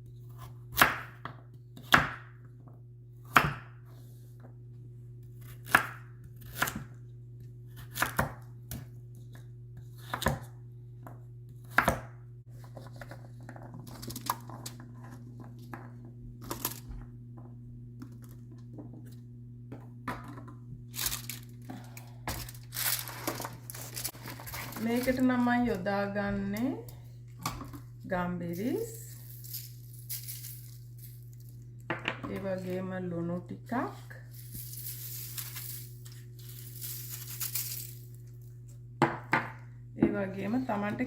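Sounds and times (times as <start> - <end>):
steady low hum: 0.0 - 41.0
knife chopping on cutting board: 0.4 - 2.3, 3.2 - 3.8, 11.6 - 12.1
rustling and crinkling: 20.9 - 25.6.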